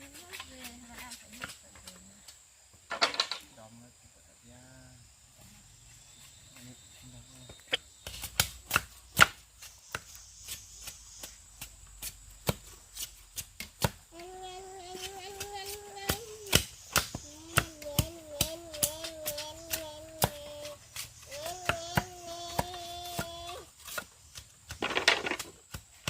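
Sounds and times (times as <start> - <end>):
knocks of wood being struck: 8.0 - 10.2, 16.0 - 20.7, 21.4 - 26.0.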